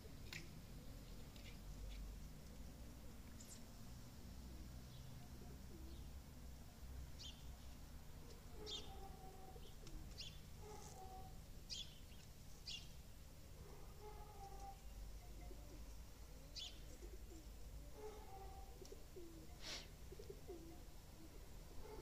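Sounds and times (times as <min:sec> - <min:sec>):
faint birdsong chirps: 0:00.3 - 0:22.0.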